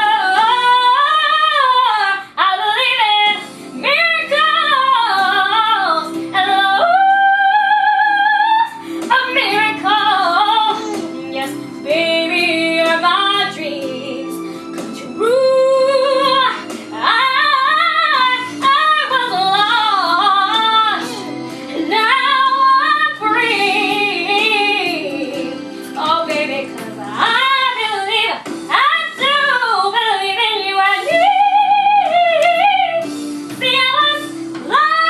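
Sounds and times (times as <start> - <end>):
instrumental accompaniment: 0.0 - 35.0
woman singing with vibrato: 0.0 - 35.0.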